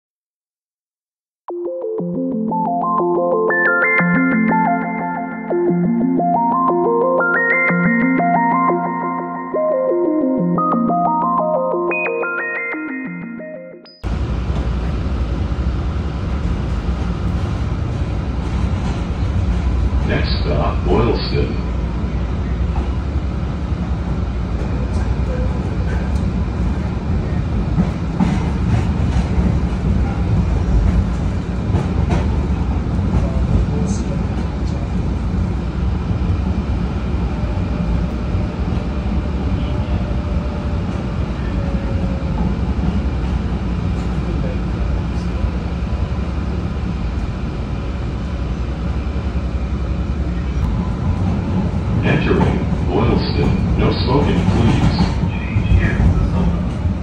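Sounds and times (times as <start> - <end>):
light-rail trolley interior rumble: 14.0 - 57.0.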